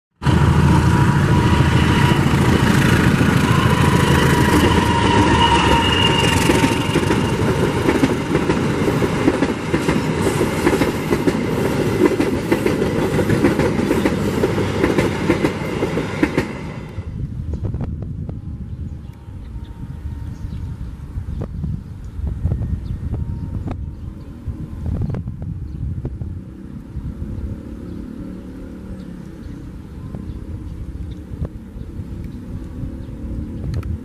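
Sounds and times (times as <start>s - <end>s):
thin high whine: 0.2s - 7.5s
diesel locomotive passing: 0.2s - 21.3s, 22.1s - 34.0s
clickety-clack of wheels on rails: 1.3s - 17.1s.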